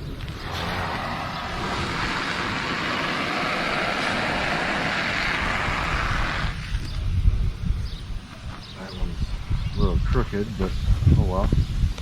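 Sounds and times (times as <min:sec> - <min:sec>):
lawn sprinkler spraying water: 0:00.2 - 0:06.9.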